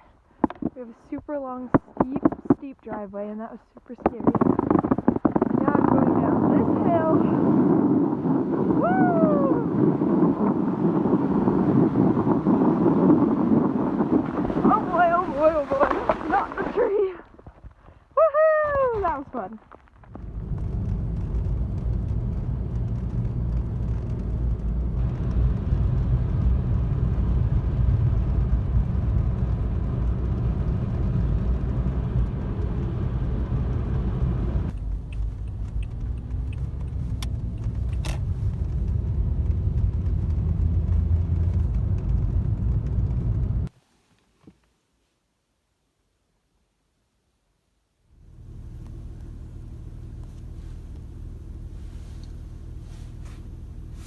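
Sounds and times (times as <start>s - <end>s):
car driving rumble: 0.0s - 17.7s, 18.7s - 43.7s, 48.1s - 54.0s
sharp clicks: 34.7s - 39.0s.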